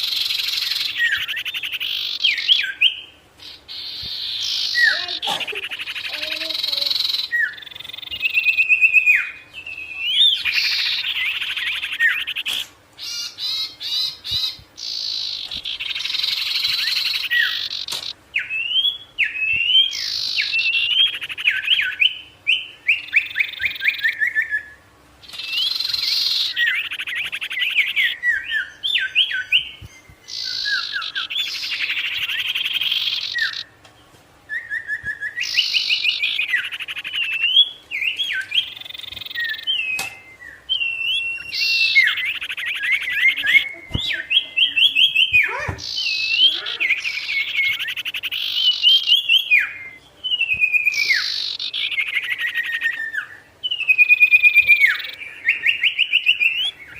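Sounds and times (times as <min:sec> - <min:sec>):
songbird singing: 0:00.0 - 0:56.9.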